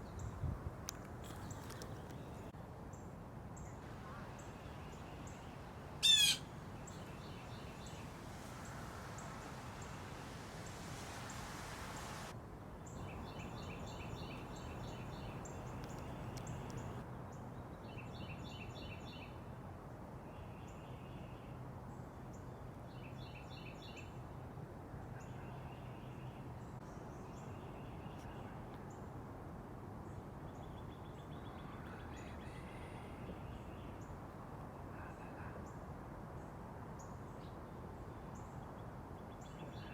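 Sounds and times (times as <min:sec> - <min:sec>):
songbirds chirping: 0:00.0 - 0:02.5, 0:03.6 - 0:17.0
steady hiss: 0:03.8 - 0:17.0.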